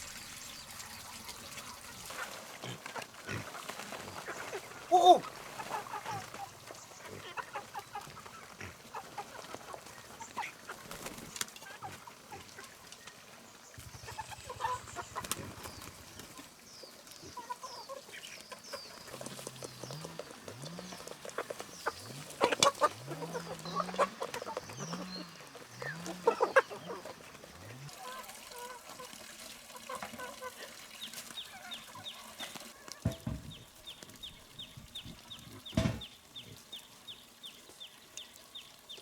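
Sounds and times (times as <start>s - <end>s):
chickens clucking: 0.0s - 39.0s
sharp knocks: 33.1s - 33.6s, 35.7s - 36.0s.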